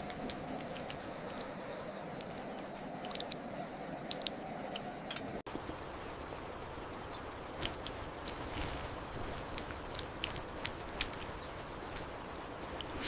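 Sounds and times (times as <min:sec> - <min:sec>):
wet chewing: 0:00.0 - 0:05.1, 0:07.6 - 0:13.0
steady background hum: 0:00.0 - 0:13.0.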